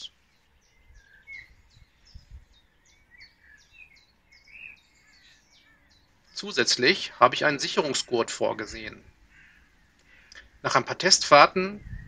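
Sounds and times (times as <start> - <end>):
faint birdsong chirps: 0.0 - 12.0.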